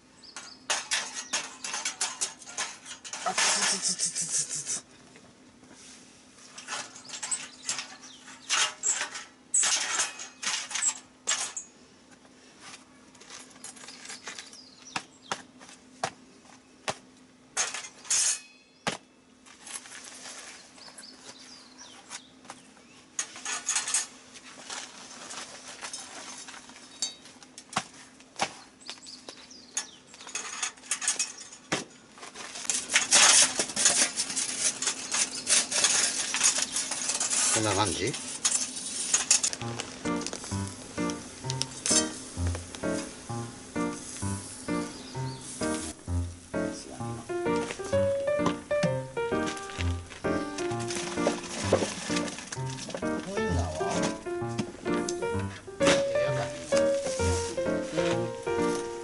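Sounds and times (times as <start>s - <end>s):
metal utensils scraping a pan: 0.7s - 4.0s, 6.5s - 11.7s, 17.6s - 18.6s, 32.7s - 39.5s, 41.8s - 42.4s, 49.9s - 54.2s.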